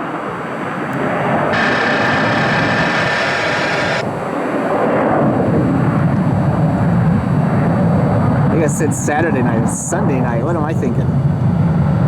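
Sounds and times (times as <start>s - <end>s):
jet engines rumbling: 0.0s - 11.6s
hiss with whistle-like tone: 1.6s - 4.1s.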